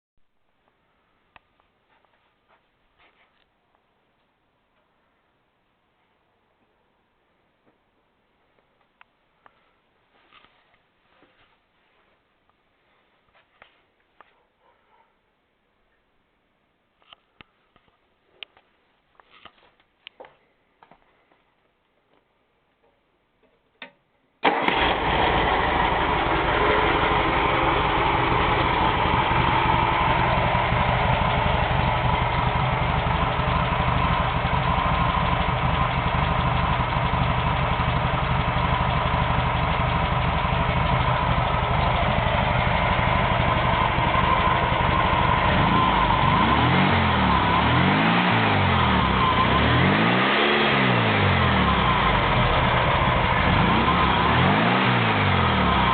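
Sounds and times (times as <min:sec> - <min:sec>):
car engine starting and idling: 0:24.4 - 0:55.9.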